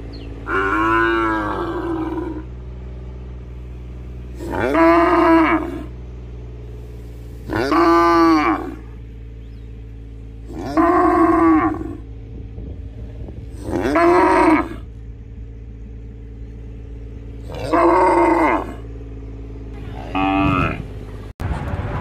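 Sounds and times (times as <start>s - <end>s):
low background rumble: 0.0s - 22.0s
cattle mooing: 0.4s - 2.6s, 4.3s - 6.0s, 7.4s - 9.0s, 10.4s - 12.1s, 13.5s - 15.0s, 17.4s - 18.9s, 19.8s - 21.0s.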